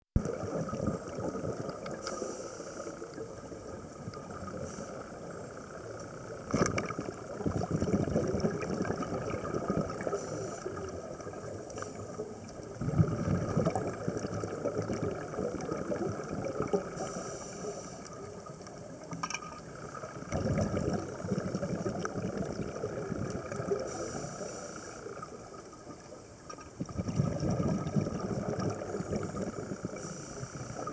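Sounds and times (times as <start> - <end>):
exhaled bubbles rumbling: 0.2 - 2.1, 3.0 - 17.3, 18.1 - 30.9
scuba regulator inhalation hiss: 2.0 - 3.2, 4.4 - 5.5, 9.9 - 11.1, 16.8 - 18.4, 23.7 - 25.4, 29.0 - 30.9.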